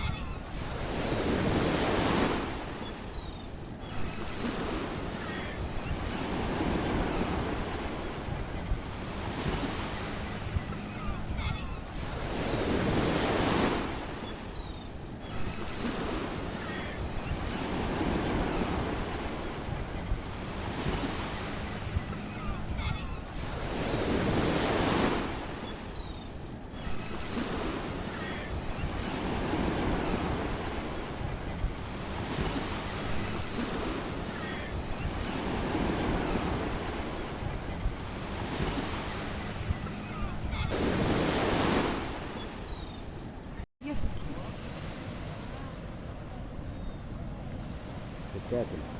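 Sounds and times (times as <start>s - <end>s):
wind buffeting microphone: 5.6s - 14.1s, 28.0s - 48.9s
waves breaking on rocks: 32.2s - 46.3s, 47.5s - 48.9s.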